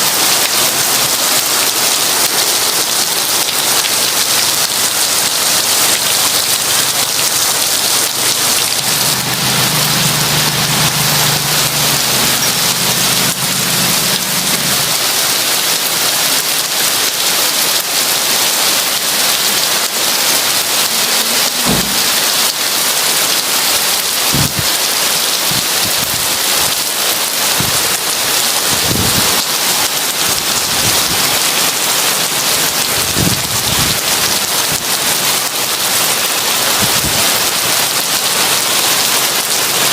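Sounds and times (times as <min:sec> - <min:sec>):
heavy rain falling: 0:00.0 - 0:39.9
thunder rumbling: 0:21.6 - 0:22.6, 0:24.3 - 0:24.7, 0:28.7 - 0:29.4.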